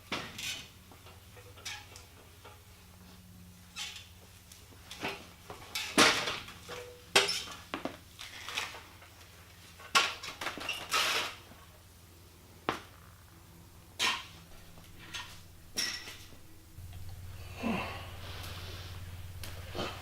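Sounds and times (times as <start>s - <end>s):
faint low hum: 11.4s - 20.0s.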